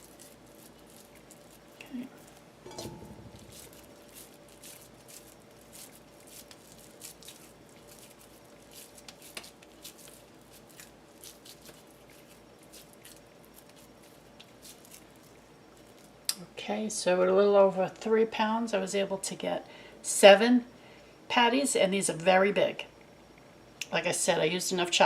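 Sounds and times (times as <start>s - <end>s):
low thump: 2.7s - 3.8s.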